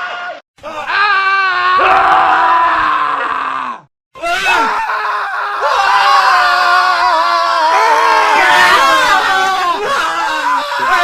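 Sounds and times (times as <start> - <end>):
men screaming: 0.0 - 11.0.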